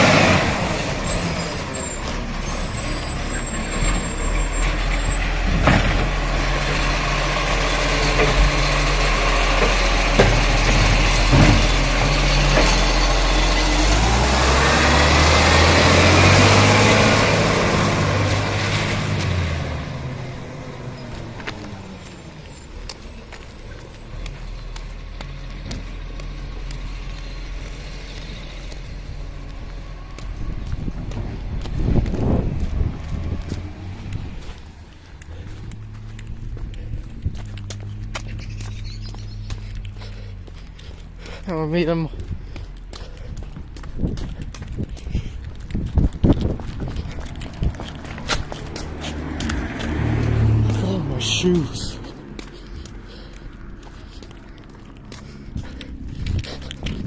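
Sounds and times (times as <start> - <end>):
engine revving whine: 0.0 - 41.4
garbage truck diesel engine: 0.0 - 57.0.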